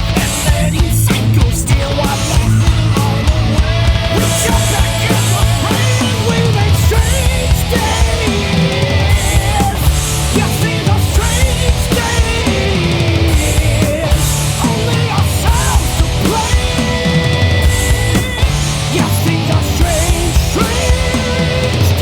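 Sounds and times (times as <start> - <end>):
instrumental rock music: 0.0 - 22.0.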